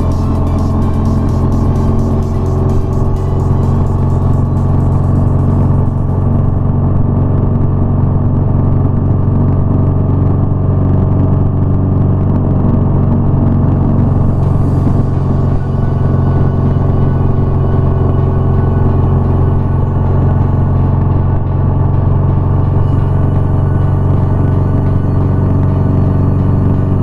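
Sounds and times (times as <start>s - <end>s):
electronic music with ticking beat: 0.0s - 6.8s, 12.7s - 27.0s
motorcycle engine cruising: 0.0s - 27.0s.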